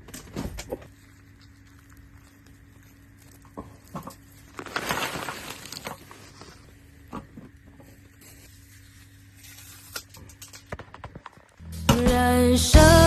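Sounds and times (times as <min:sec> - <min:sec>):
plastic packaging crinkling: 0:00.2 - 0:07.0.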